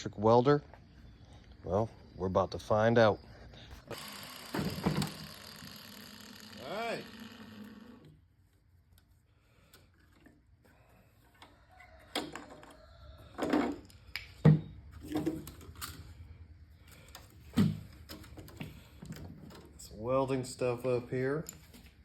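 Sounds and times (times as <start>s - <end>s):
knocks and clunks of tools: 4.5s - 5.3s.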